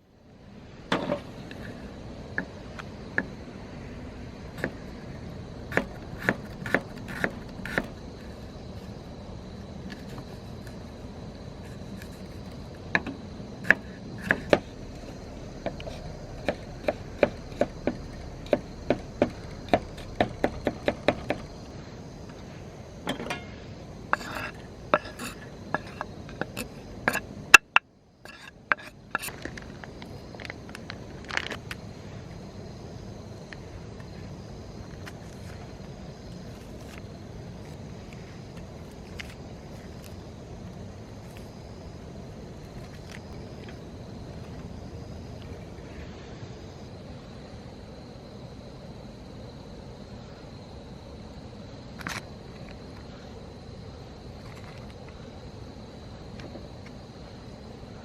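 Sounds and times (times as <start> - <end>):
high insect trill: 0.0 - 58.0
knife chopping on cutting board: 5.7 - 8.0.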